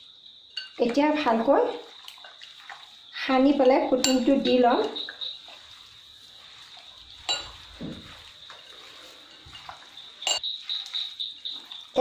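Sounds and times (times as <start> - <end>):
clink against bowl: 0.6 - 0.8, 3.6 - 5.3, 7.2 - 7.6, 9.3 - 11.0
wet squishing of mixing meat: 1.1 - 12.0.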